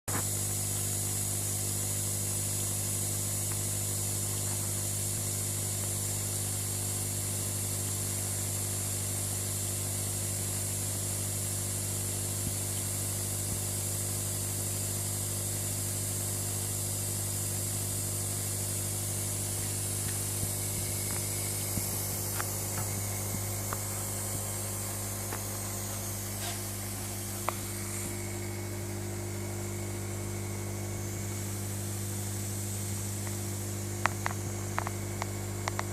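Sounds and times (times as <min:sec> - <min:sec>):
mist spray hissing: 0:17.7 - 0:29.4.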